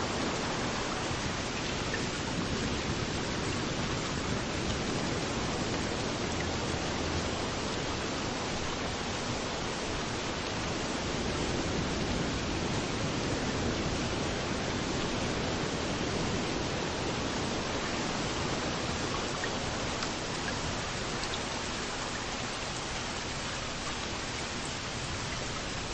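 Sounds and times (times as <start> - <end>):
rain hissing: 0.0 - 25.9
waves washing on beach: 0.0 - 25.9
raindrop ticks: 19.1 - 21.6.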